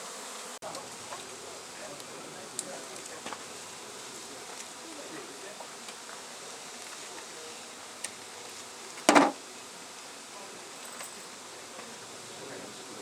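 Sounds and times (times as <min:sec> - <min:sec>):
short loud bump: 0:09.1 - 0:09.4.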